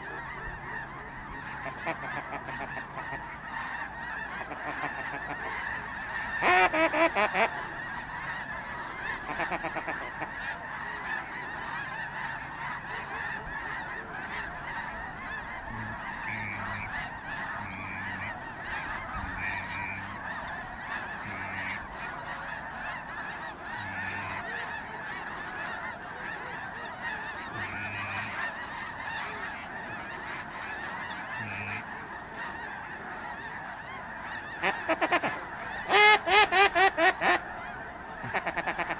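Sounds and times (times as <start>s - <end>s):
flock of geese honking: 0.0s - 38.9s.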